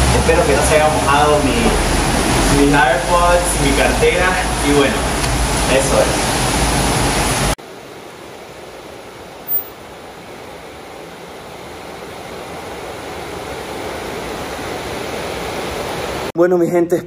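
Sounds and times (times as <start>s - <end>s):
torrential rain pouring: 0.0s - 7.6s.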